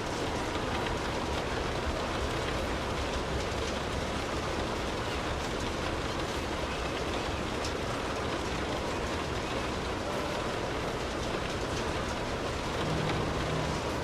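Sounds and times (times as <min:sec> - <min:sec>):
steady rainfall hiss: 0:00.0 - 0:14.0
low steady rumble: 0:12.6 - 0:14.0.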